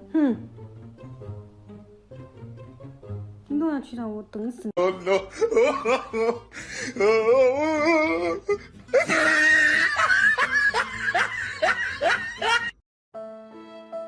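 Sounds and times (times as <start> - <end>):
person laughing loudly: 4.8 - 12.8.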